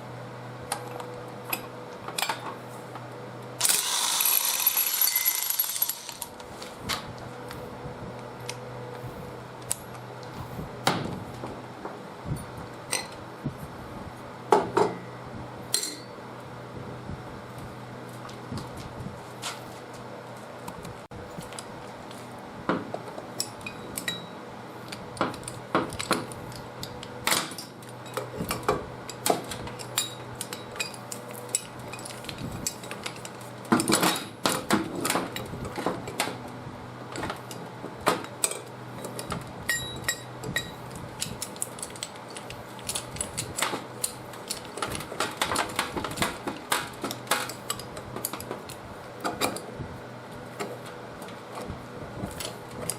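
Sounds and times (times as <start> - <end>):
metal tools and engine parts clinking: 3.6 - 6.3, 15.7 - 16.2, 23.4 - 24.4, 27.4 - 34.4, 38.4 - 43.6.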